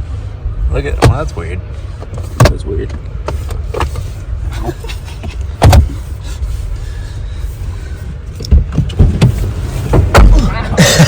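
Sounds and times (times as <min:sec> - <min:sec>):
steady low rumble: 0:00.0 - 0:11.0
car door thump: 0:00.9 - 0:01.3, 0:02.2 - 0:02.6, 0:05.6 - 0:06.0, 0:08.5 - 0:10.5
car doors knocking: 0:00.9 - 0:01.3, 0:02.2 - 0:03.0, 0:05.6 - 0:06.0, 0:08.4 - 0:11.0.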